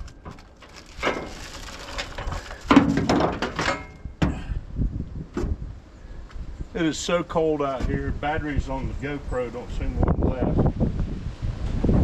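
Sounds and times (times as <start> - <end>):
heavy metal hitch scraping: 0.0 - 4.1.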